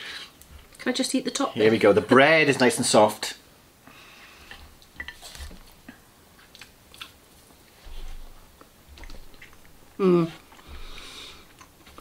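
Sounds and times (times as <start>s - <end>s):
close chewing with mouth clicks: 4.4s - 12.0s.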